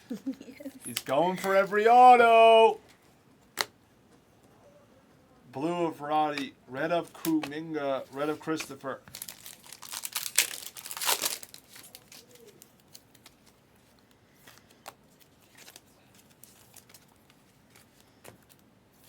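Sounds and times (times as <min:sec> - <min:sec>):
cards clicking and rustling: 0:00.7 - 0:01.7, 0:06.3 - 0:07.6, 0:08.3 - 0:18.7
plastic wrappers crinkling and tearing: 0:08.3 - 0:18.6.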